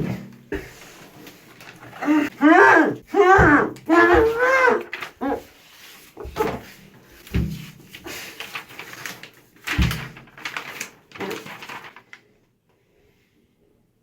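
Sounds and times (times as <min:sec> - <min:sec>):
heavy thumps and knocks: 0:03.3 - 0:04.7.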